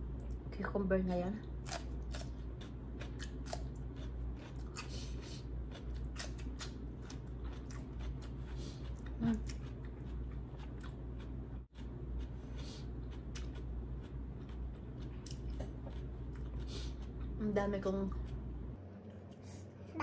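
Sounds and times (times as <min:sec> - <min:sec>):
low hum: 0:00.0 - 0:20.0
chewing and crunching: 0:01.5 - 0:17.4.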